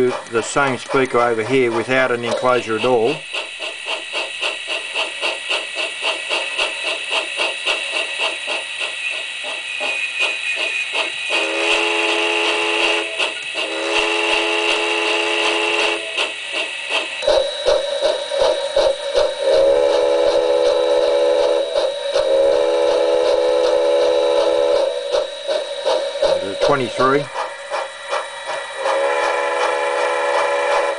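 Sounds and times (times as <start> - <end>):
locomotive chuffing through small speaker: 0.0 - 30.9
multi-tone train whistle: 9.0 - 16.4, 17.2 - 27.3, 28.8 - 30.9.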